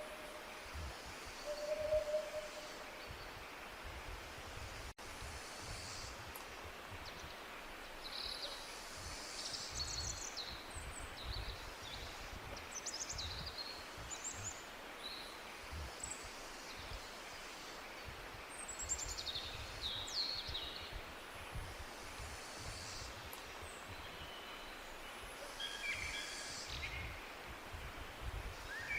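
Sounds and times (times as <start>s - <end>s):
background hiss: 0.0s - 28.9s
birds chirping and trilling: 1.4s - 3.4s.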